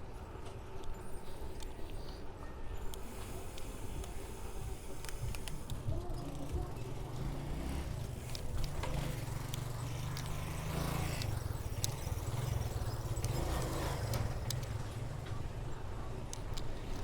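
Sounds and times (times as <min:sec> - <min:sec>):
small clicks and rattles: 0:00.0 - 0:17.0
road rumble: 0:04.3 - 0:17.0.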